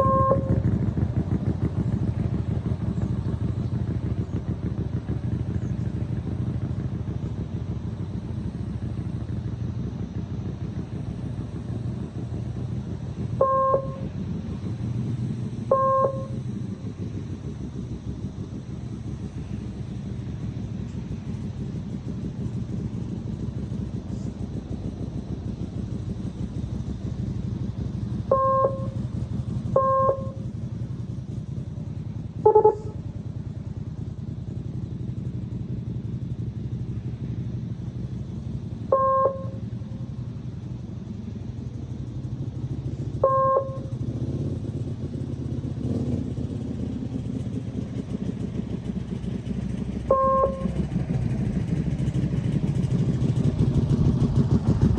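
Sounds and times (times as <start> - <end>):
motorcycle engine running: 0.0 - 54.9
short electronic beeps: 13.4 - 14.0, 15.7 - 16.4, 28.3 - 29.0, 29.8 - 30.4, 39.0 - 39.6, 43.2 - 43.8, 50.1 - 50.8.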